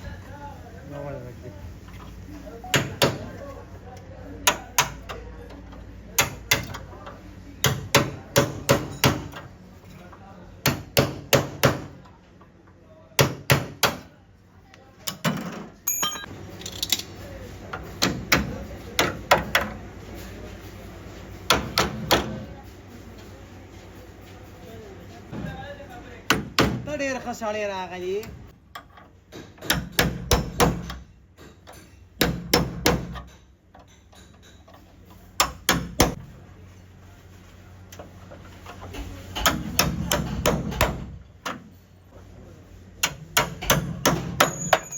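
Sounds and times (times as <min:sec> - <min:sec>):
high ringing: 0:15.9 - 0:16.4, 0:44.4 - 0:44.9.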